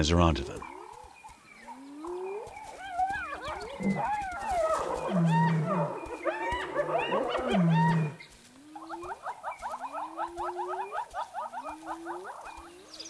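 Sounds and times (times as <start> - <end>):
hyenas giggling: 8.8 - 12.8.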